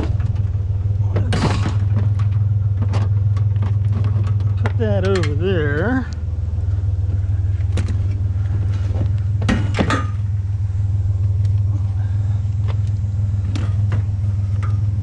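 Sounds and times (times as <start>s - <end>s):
scrap metal clanks and knocks: 0.0s - 5.4s, 7.6s - 10.3s
truck engine idling: 0.0s - 15.0s.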